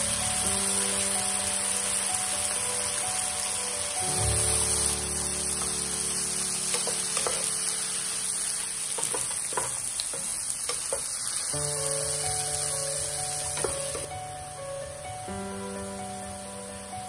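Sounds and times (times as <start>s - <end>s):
food sizzling in a frying pan: 0.0s - 17.0s
spatula scraping and clacking on pan: 6.7s - 7.6s, 9.0s - 11.2s.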